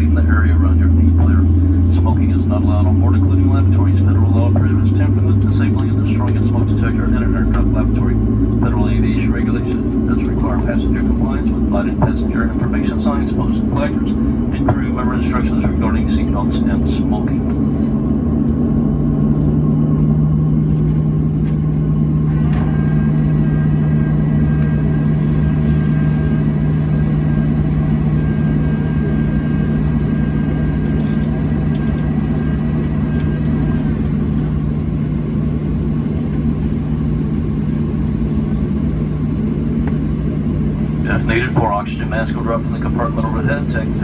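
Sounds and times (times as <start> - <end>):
airplane cabin drone: 0.0 - 44.0
faint high whine: 20.3 - 35.4.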